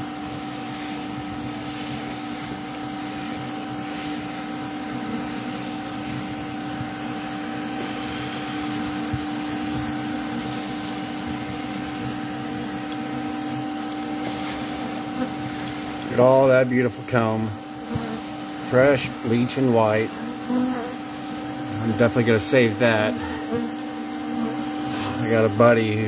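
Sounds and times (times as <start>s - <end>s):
bee vacuum droning: 0.0s - 26.0s.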